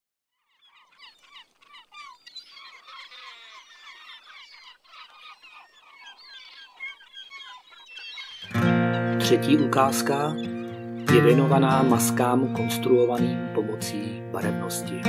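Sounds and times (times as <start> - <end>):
songbirds singing: 0.3 - 15.0.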